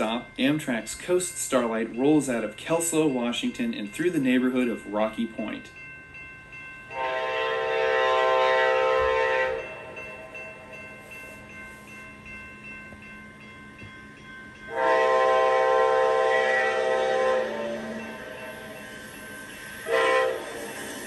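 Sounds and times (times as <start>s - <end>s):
locomotive horn blasts: 6.9s - 9.6s, 14.7s - 18.1s, 19.8s - 20.6s.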